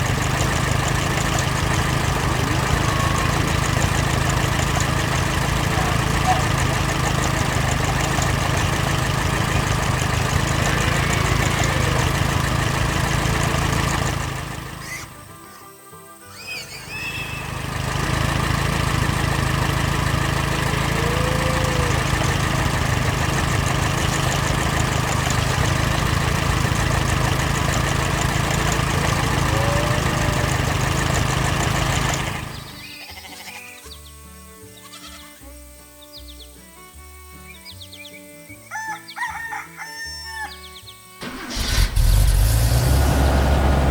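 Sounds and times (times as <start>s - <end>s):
animal sound effects: 10.4s - 12.6s, 16.3s - 17.6s, 20.9s - 22.1s, 29.0s - 30.8s.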